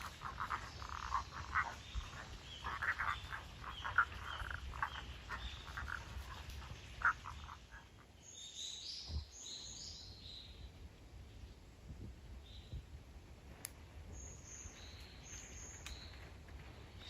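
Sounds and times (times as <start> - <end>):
frogs croaking in chorus: 0.0 - 8.2
small bird singing: 0.0 - 10.6, 14.1 - 16.3.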